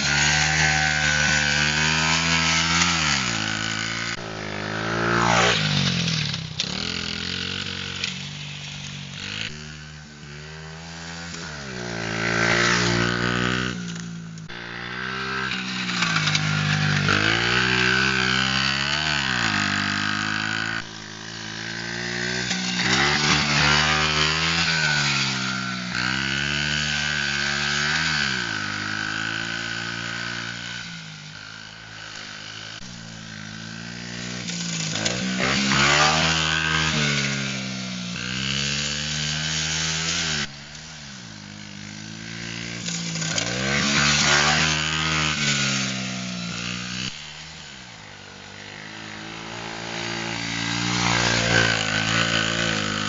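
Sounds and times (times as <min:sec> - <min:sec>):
pit bike engines revving: 0:00.0 - 0:53.0.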